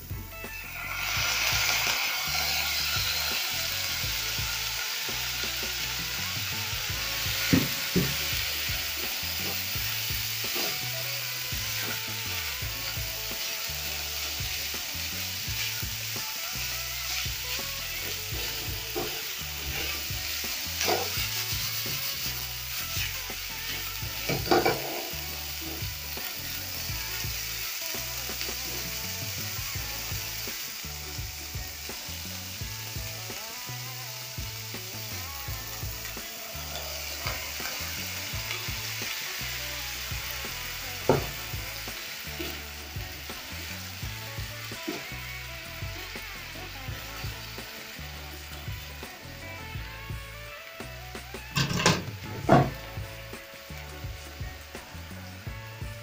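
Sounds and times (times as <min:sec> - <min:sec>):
liver and onions sizzling in pan: 0:00.0 - 0:56.0.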